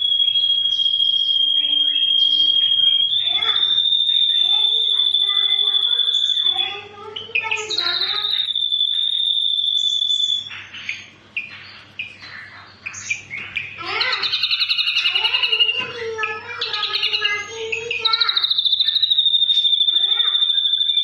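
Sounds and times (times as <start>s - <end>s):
drongo singing: 0.0s - 10.5s.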